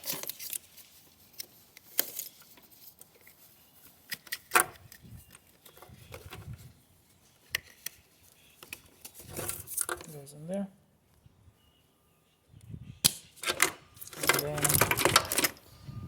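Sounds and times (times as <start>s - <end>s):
wires rattling: 9.0s - 10.2s, 13.4s - 15.6s
plastic connectors clicking: 13.0s - 15.6s.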